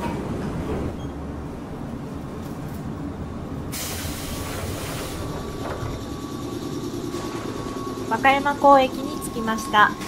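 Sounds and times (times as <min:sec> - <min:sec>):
electric train rumbling on rails: 0:00.0 - 0:10.0
hiss: 0:03.7 - 0:05.3.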